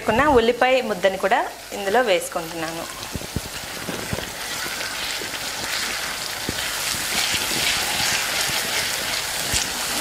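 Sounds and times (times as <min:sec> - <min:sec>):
paste frying in hot oil: 0:00.0 - 0:10.0.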